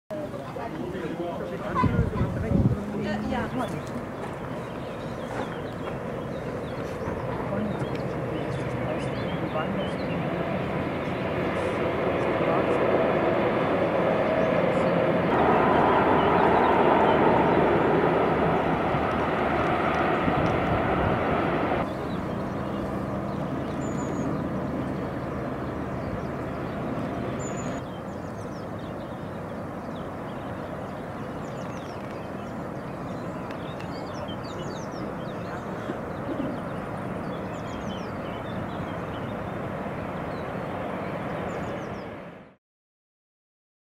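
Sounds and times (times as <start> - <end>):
distant trains rumbling: 0.1 - 42.4
small birds chirping: 3.0 - 15.2, 21.8 - 42.2.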